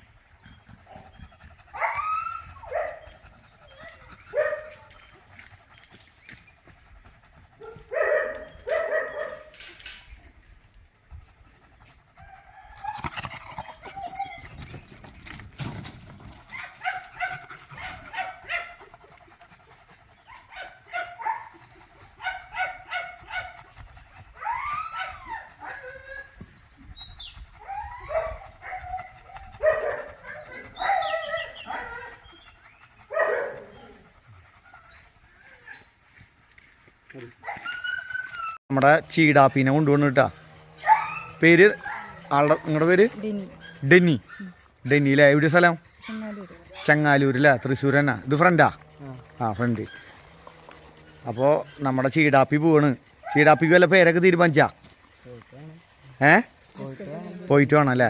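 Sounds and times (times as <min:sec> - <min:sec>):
dogs whining: 0:00.0 - 0:05.7, 0:12.0 - 0:15.4, 0:20.1 - 0:36.0, 0:37.4 - 0:38.6, 0:39.5 - 0:54.1
dogs barking and yelping: 0:00.0 - 0:36.6, 0:37.4 - 0:38.6, 0:39.2 - 0:58.0.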